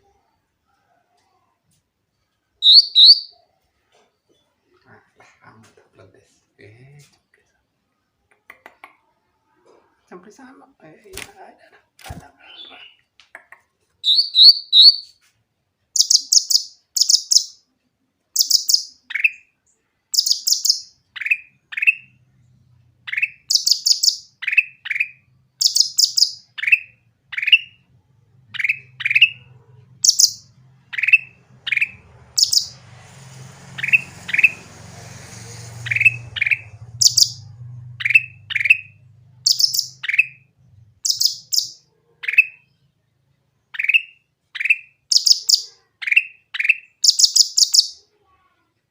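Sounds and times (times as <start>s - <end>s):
songbird chirping: 2.1s - 7.5s, 12.3s - 15.2s, 15.9s - 48.1s
faint low hum: 24.8s - 43.8s
brief hiss: 32.8s - 36.2s.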